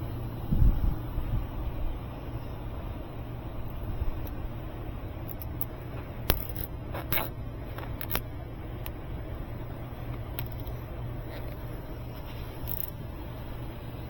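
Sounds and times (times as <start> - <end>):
air conditioner humming: 0.0 - 14.0
zip ties clicking: 5.2 - 9.0, 12.5 - 13.0.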